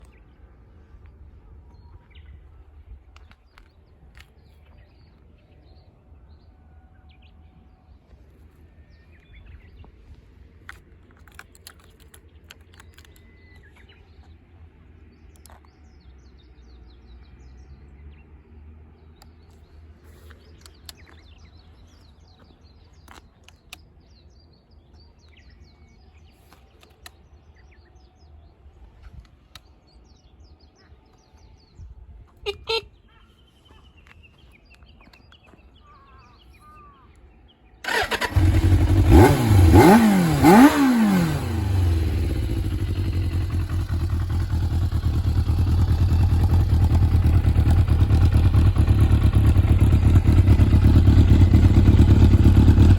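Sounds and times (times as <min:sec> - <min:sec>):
small birds chirping: 0:00.0 - 0:52.9
sharp clicks: 0:10.7 - 0:13.7.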